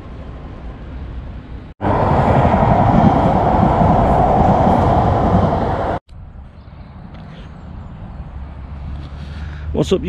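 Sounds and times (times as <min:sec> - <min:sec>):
passenger train rumbling: 0:01.8 - 0:06.0.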